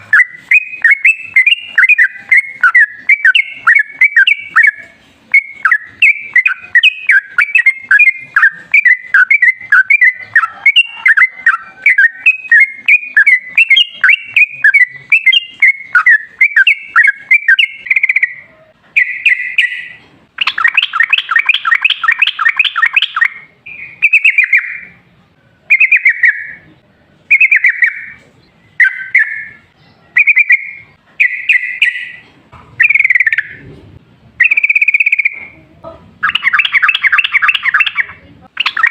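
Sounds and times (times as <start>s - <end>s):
bird chattering bubbly song: 0.0s - 24.9s, 32.8s - 33.6s, 34.4s - 35.6s, 36.2s - 38.9s
loud rapid bird trill: 0.0s - 24.9s, 34.4s - 35.4s, 36.2s - 38.9s.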